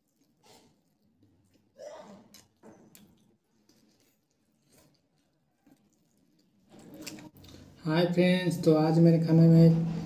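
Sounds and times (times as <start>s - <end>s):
faint chewing: 0.0s - 7.8s.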